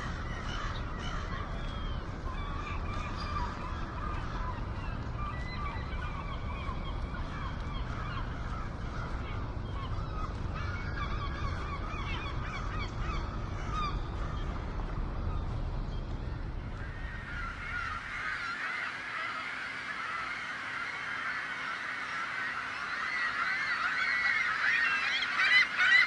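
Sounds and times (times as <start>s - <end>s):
steady low rumble: 0.0s - 18.5s
gulls calling: 0.0s - 26.0s.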